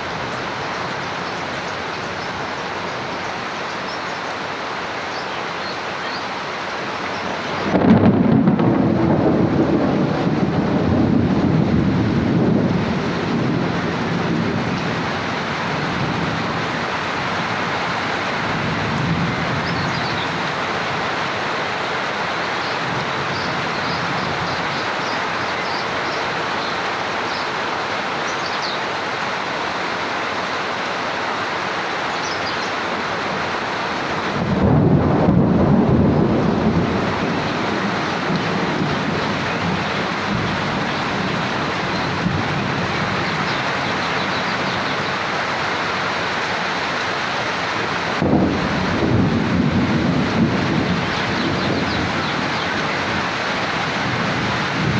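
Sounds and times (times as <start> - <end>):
steady rain falling: 0.0 - 54.9
thunder rumbling: 7.1 - 26.2, 33.1 - 46.3, 47.7 - 54.9.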